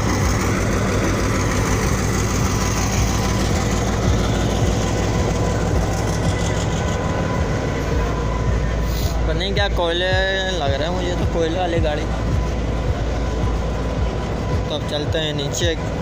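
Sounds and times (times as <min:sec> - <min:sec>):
diesel locomotive running: 0:00.0 - 0:16.0.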